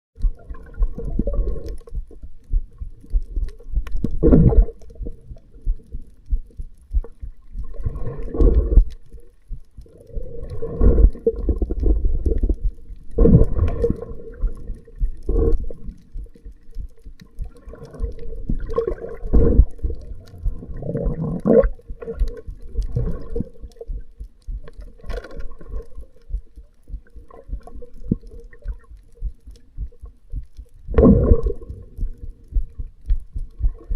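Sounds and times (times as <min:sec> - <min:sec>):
faint steady hum: 0:00.2 - 0:33.9
underwater sloshing surges: 0:06.8 - 0:09.2, 0:09.8 - 0:16.3, 0:17.4 - 0:23.8, 0:30.9 - 0:33.9.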